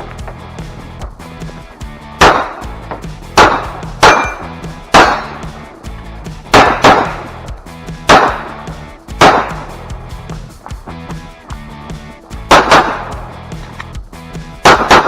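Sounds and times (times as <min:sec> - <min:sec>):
pistol shots: 0:02.2 - 0:05.5, 0:06.5 - 0:07.4, 0:08.0 - 0:09.8, 0:12.5 - 0:13.3, 0:14.6 - 0:15.0.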